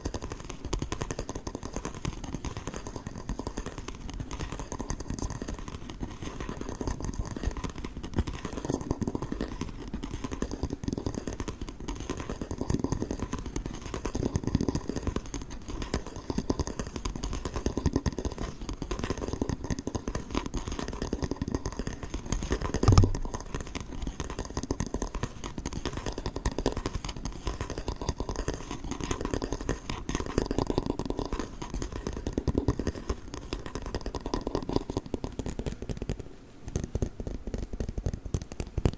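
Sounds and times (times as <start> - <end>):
tapping and scratching on ruler: 0.0 - 38.9
loud knock: 22.9 - 23.2.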